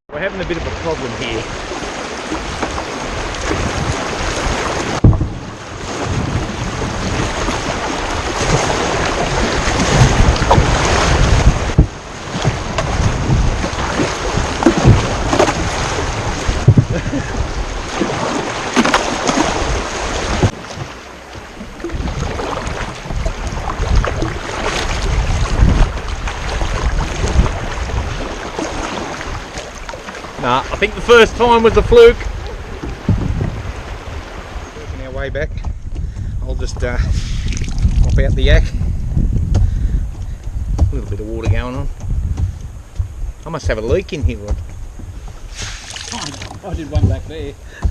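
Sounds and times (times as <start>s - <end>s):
water rushing and splashing: 0.2s - 47.9s
wind buffeting microphone: 0.2s - 47.9s
paddle stroke knocks: 4.7s - 5.5s, 8.4s - 16.9s, 38.8s - 47.9s.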